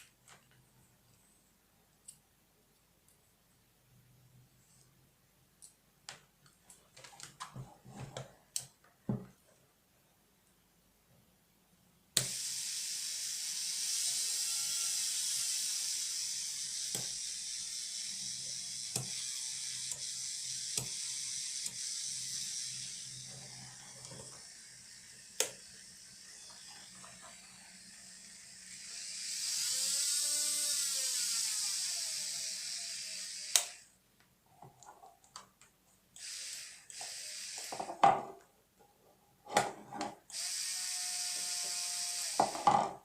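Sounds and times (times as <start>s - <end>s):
nail drill whining: 12.2s - 33.9s, 36.2s - 38.0s, 40.3s - 42.8s
nail drill switch click: 33.5s - 33.8s.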